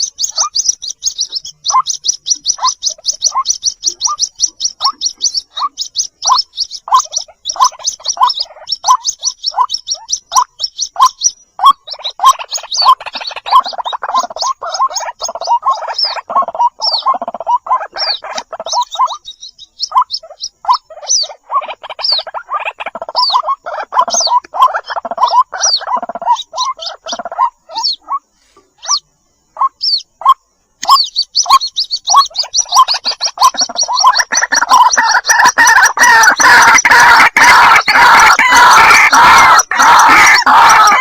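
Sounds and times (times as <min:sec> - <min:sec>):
bird chicks begging calls: 0:00.0 - 0:41.0.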